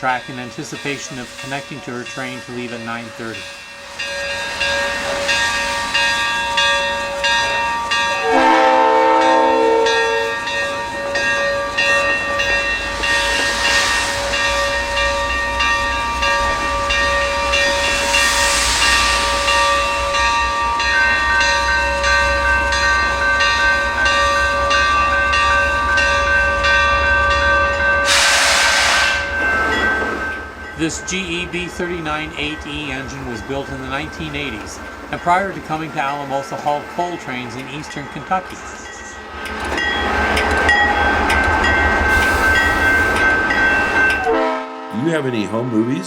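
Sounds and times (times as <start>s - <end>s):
steam locomotive hissing: 0.0s - 25.6s, 27.8s - 44.1s
train whistle blast: 8.2s - 10.4s, 28.0s - 29.4s, 44.3s - 45.1s
steam rushing out: 17.4s - 20.2s, 28.0s - 29.4s, 42.0s - 43.4s.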